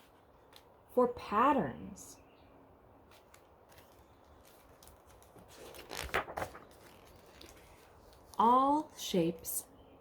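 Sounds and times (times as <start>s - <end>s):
paper page turning rustle: 0.0s - 0.8s, 3.0s - 9.0s.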